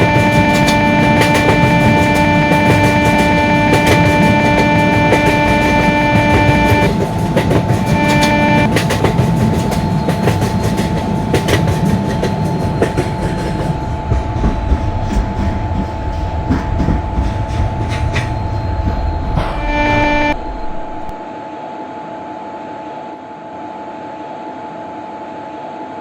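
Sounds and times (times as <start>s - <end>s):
held pitched tone: 0.0s - 8.7s
train wheels clattering on rails: 0.0s - 20.2s
train rumble: 0.0s - 21.2s.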